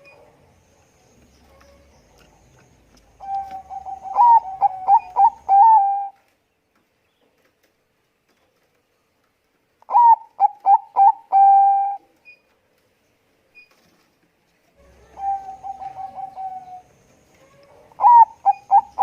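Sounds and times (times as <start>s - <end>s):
dove cooing: 3.1s - 6.2s, 9.9s - 12.1s, 14.8s - 19.0s.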